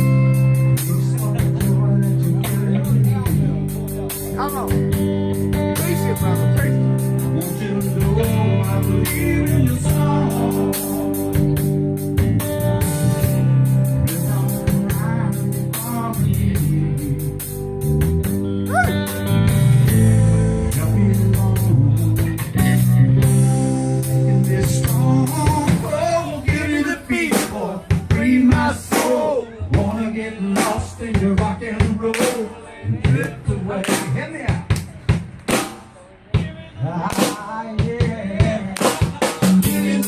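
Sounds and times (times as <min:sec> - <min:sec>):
drum kit beat: 0:00.0 - 0:40.0
live band music: 0:00.0 - 0:40.0.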